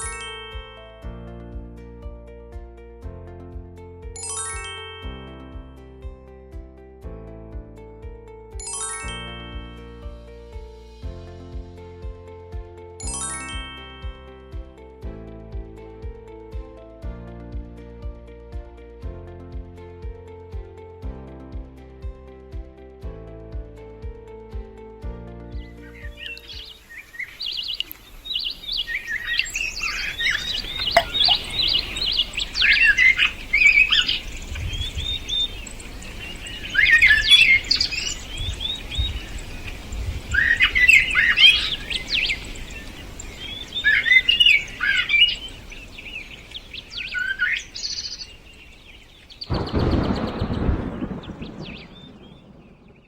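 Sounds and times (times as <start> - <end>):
birds chirping and singing: 25.6 - 53.0.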